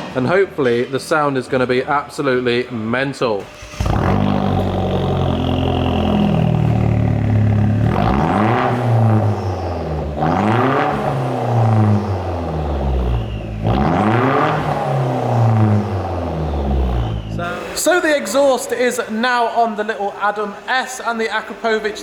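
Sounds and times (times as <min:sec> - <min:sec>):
car engine revving: 0:03.4 - 0:19.1.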